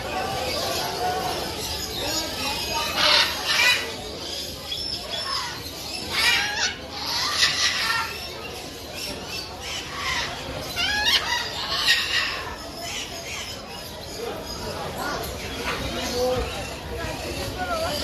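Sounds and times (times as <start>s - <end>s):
parrots screeching: 1.6s - 13.6s.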